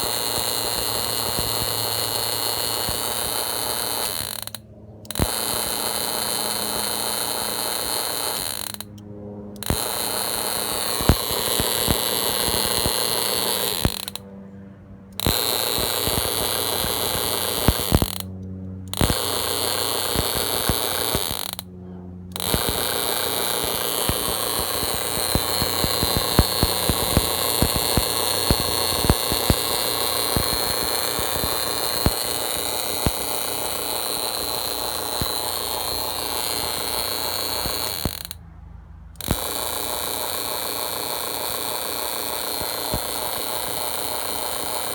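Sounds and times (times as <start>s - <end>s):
high electrical whine: 0.0s - 14.4s, 15.2s - 38.4s, 39.2s - 44.9s
sharp snapping clicks: 19.0s - 19.4s.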